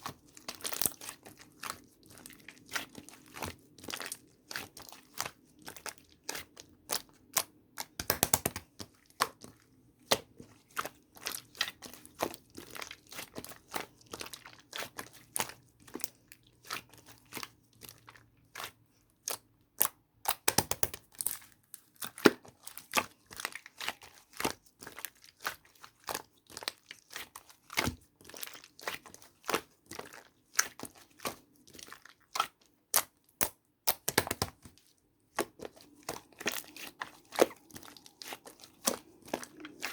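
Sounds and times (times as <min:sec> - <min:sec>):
dried clay cracking and crumbling: 0:19.8 - 0:39.9.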